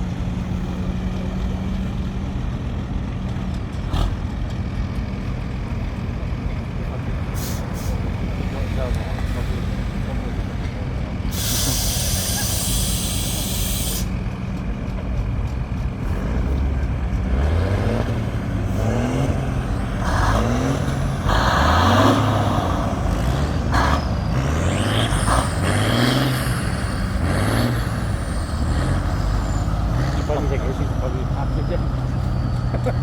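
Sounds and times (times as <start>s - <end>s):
tractor engine revving: 0.0s - 33.0s
hiss of air: 11.3s - 14.1s.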